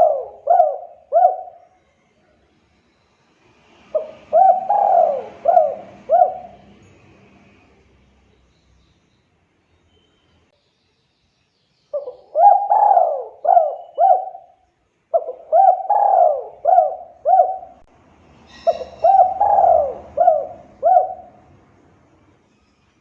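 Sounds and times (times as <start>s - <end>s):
dove cooing: 0.0s - 1.8s, 3.9s - 6.8s, 12.0s - 17.9s, 18.5s - 21.5s.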